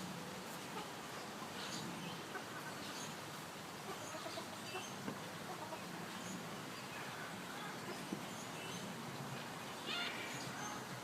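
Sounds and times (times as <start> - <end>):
background hubbub: 0.0 - 11.0
high animal chirps and calls: 9.8 - 10.8.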